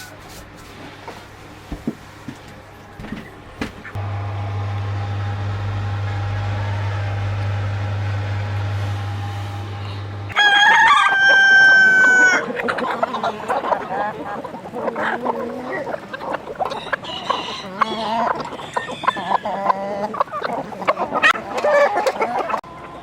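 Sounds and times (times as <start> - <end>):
steady low hum: 1.3 - 10.4
chickens clucking: 9.8 - 23.0
rooster crowing: 10.3 - 12.6, 16.7 - 19.6.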